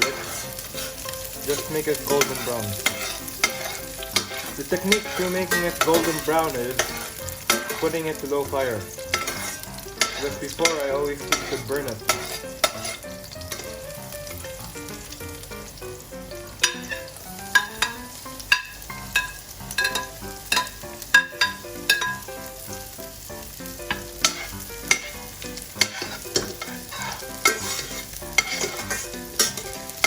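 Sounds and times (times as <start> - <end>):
onion sizzling in oil: 0.0 - 30.0
spatula knocking against pan: 9.1 - 13.7, 16.6 - 22.3, 23.9 - 25.2, 25.8 - 29.7.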